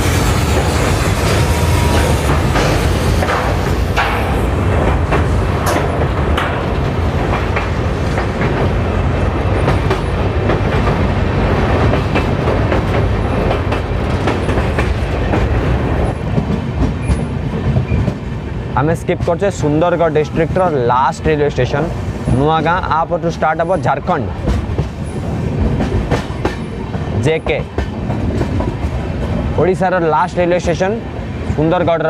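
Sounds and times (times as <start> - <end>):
wheels clacking over rail joints: 0.0 - 18.3
train wheels rumbling on rail: 0.0 - 32.0.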